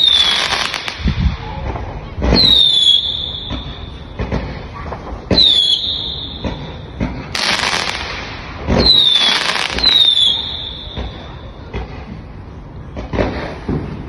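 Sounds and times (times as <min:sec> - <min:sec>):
fireworks bangs: 0:00.0 - 0:14.0
loud hissing crackle: 0:05.8 - 0:11.4.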